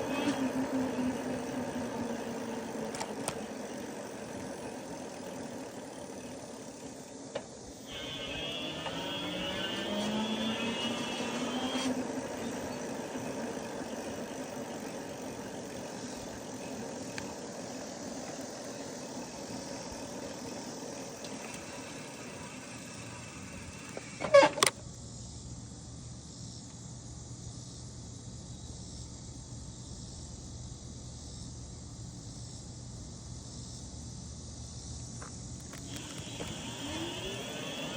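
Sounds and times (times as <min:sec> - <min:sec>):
electric motor whine: 0:00.0 - 0:24.8, 0:35.6 - 0:37.9.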